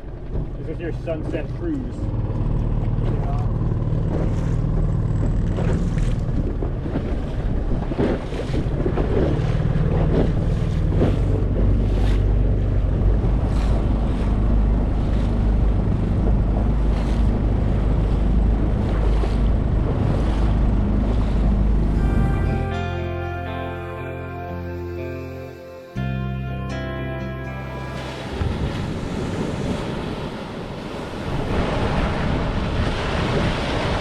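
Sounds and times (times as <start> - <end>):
wind buffeting microphone: 0.0 - 22.4, 28.2 - 34.0
water rushing along hulls: 0.0 - 34.0.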